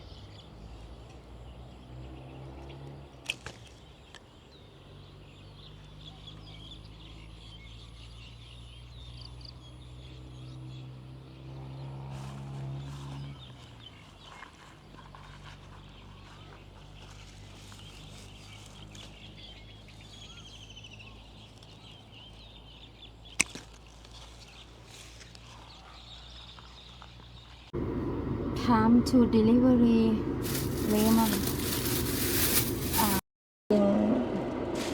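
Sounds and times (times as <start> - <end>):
birds chirping and calling: 15.8 - 24.8, 29.9 - 33.2
low steady hum: 27.8 - 34.9.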